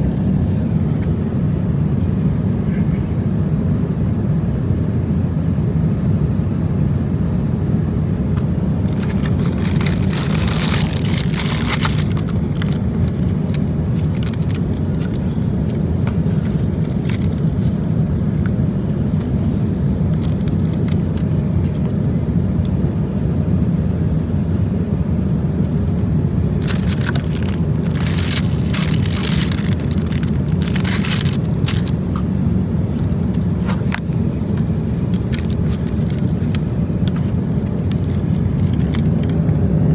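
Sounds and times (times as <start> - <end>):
aircraft cabin roar: 0.0 - 39.9
rustling: 8.9 - 17.9, 26.6 - 39.3.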